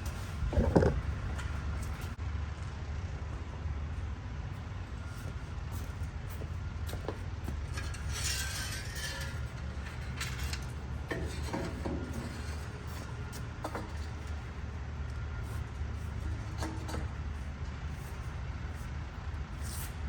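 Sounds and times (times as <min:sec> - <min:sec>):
metal clattering and clinking: 0:00.5 - 0:02.0, 0:07.4 - 0:14.5.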